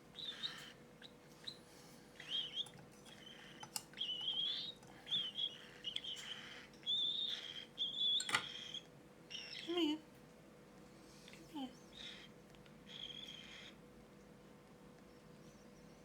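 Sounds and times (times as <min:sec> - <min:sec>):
cockatiel chicks begging cries: 0:00.1 - 0:09.8, 0:11.8 - 0:13.9.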